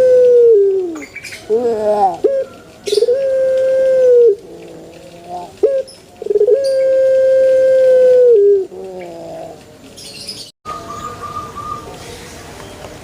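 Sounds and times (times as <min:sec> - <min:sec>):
dove cooing: 0:00.0 - 0:09.8.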